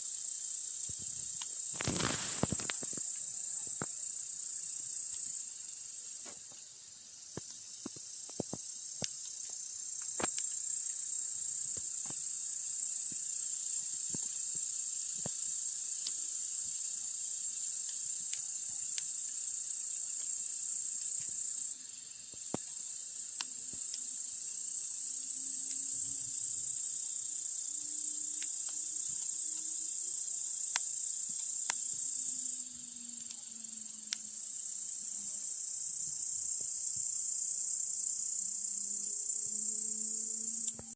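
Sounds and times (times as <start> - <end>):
crickets chirping: 0.0 - 40.9
campfire crackling: 0.6 - 27.5, 28.1 - 37.2.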